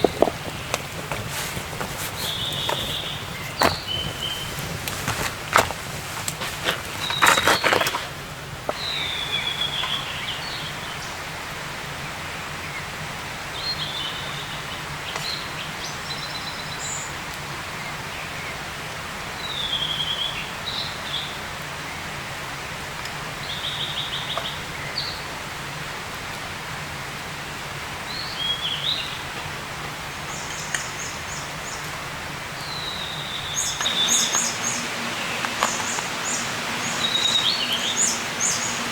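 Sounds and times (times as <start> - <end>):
forest birds chirping and trilling: 0.0 - 11.3, 28.1 - 29.4, 30.2 - 38.9
steady outdoor hiss: 0.0 - 38.9.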